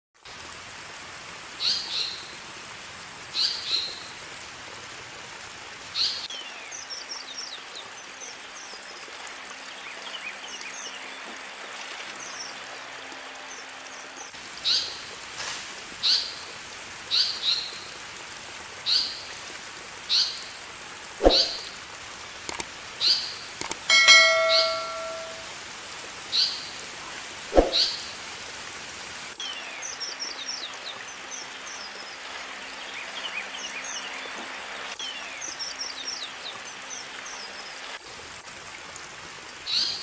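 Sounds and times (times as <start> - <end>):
bird harsh calls: 21.2 - 21.7, 23.9 - 25.4
faint bird twittering: 21.2 - 21.7, 23.9 - 25.5, 27.6 - 28.0.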